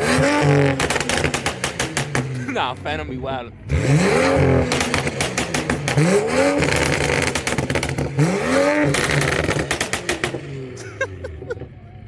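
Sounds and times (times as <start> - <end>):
car engine revving: 0.0 - 11.8
exhaust pops and cracks: 0.7 - 2.6, 4.6 - 8.2, 8.9 - 10.5.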